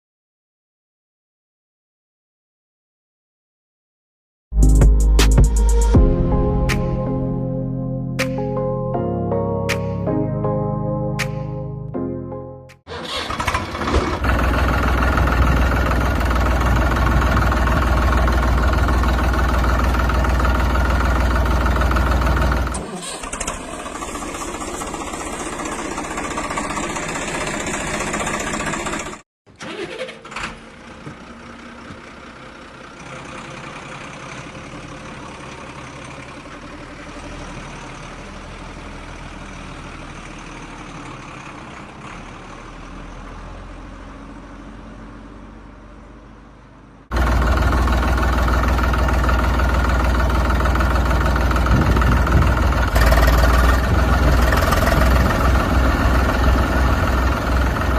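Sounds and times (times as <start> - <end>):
heavy vehicle engines running: 12.9 - 57.9.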